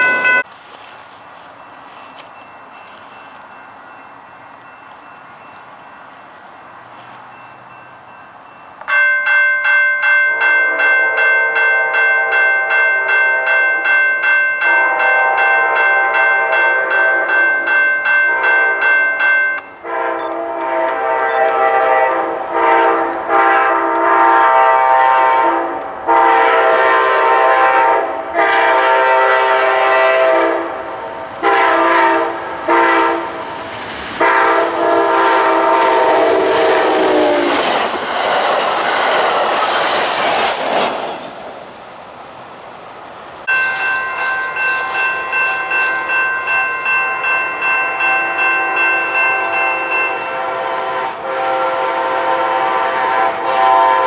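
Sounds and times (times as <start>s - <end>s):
locomotive air horn: 10.3s - 13.8s, 14.6s - 19.2s, 19.8s - 33.5s, 34.2s - 37.8s, 43.5s - 54.0s.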